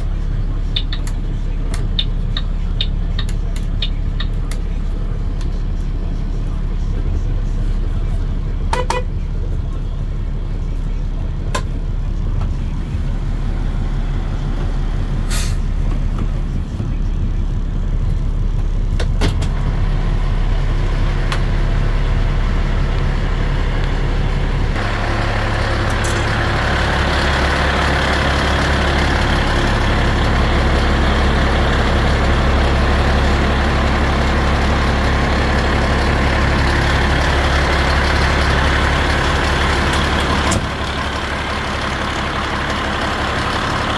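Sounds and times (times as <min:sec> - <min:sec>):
garbage truck engine running: 0:00.0 - 0:43.9.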